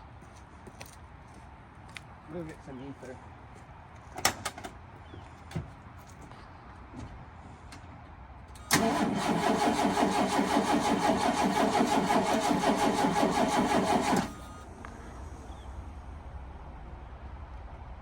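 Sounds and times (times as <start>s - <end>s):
engine cranking by starter: 8.6s - 15.7s.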